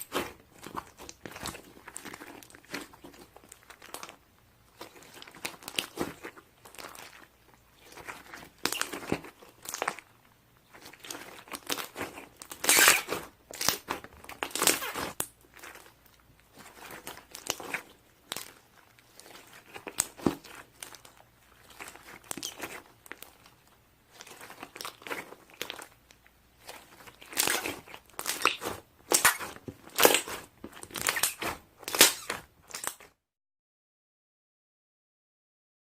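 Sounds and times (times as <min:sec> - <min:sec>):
crinkling handling noise: 0:00.0 - 0:33.2.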